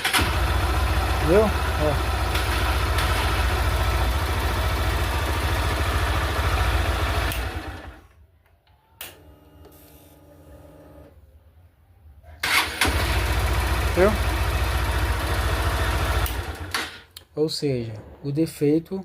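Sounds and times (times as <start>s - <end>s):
motorcycle engine idling: 0.1s - 8.0s, 13.0s - 16.7s.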